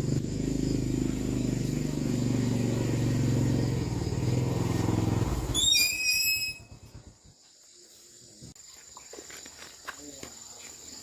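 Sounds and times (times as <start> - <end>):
low engine hum: 0.0 - 5.6.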